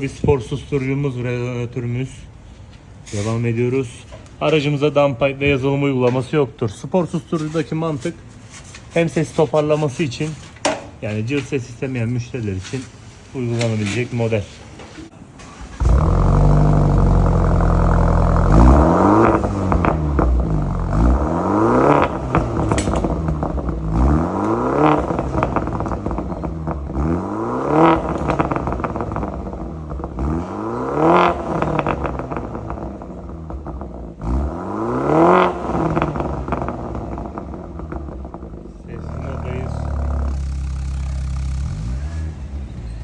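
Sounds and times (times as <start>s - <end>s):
car engine starting: 15.1s - 43.0s
car engine idling: 15.2s - 43.0s
engine revving: 15.4s - 43.0s.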